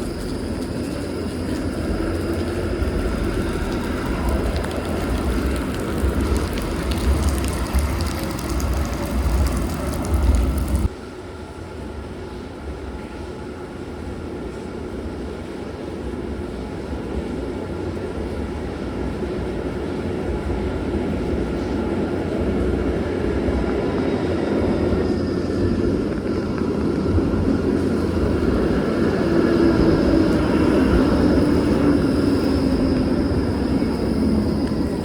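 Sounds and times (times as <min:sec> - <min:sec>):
train passing: 0:00.0 - 0:35.0
steady whine: 0:21.6 - 0:35.0.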